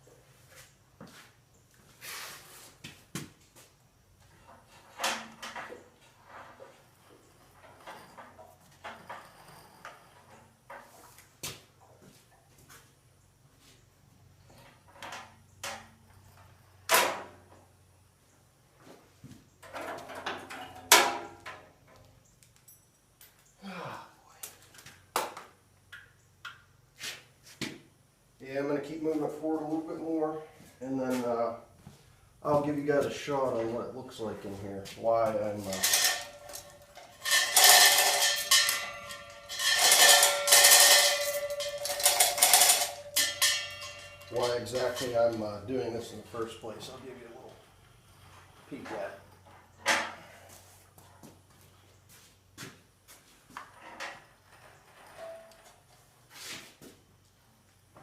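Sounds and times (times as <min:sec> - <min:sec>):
tools and tractor parts clunking: 0:04.2 - 0:12.8, 0:14.3 - 0:17.8, 0:18.8 - 0:23.6, 0:34.4 - 0:51.4, 0:52.0 - 0:56.9
metal striking metal: 0:35.7 - 0:45.4.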